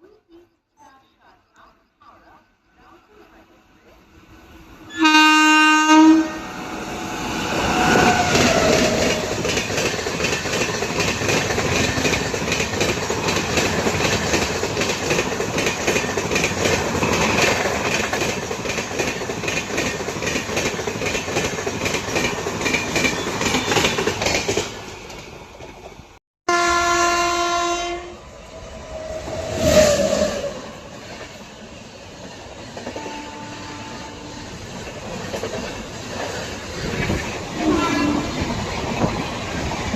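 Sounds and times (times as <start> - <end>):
locomotive horn blast: 4.9 - 9.3, 26.5 - 28.2, 33.0 - 34.5, 37.6 - 38.4
train wheels clattering: 7.3 - 26.0, 34.4 - 39.9.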